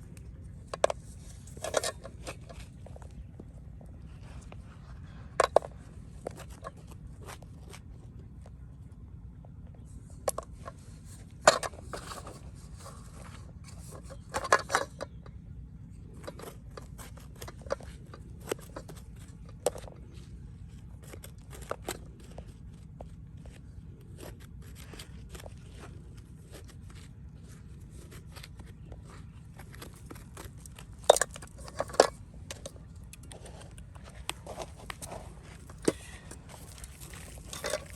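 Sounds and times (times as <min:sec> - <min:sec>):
scrapes and clicks: 0:00.0 - 0:08.6, 0:16.0 - 0:37.9
steady low hum: 0:00.0 - 0:37.9.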